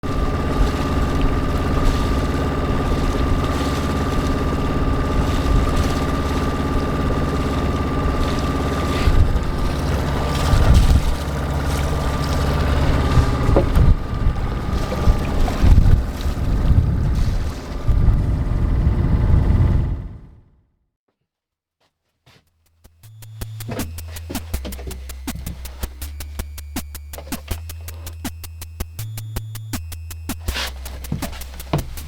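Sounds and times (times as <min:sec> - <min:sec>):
marine diesel engine running: 0:00.0 - 0:20.5, 0:23.0 - 0:32.0
wind buffeting microphone: 0:00.2 - 0:20.4.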